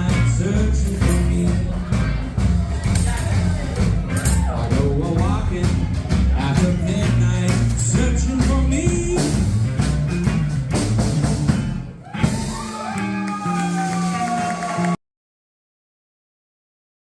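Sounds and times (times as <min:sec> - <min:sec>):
drum hits: 0:00.0 - 0:12.8
band playing country song: 0:00.0 - 0:15.0
bass: 0:00.0 - 0:15.0.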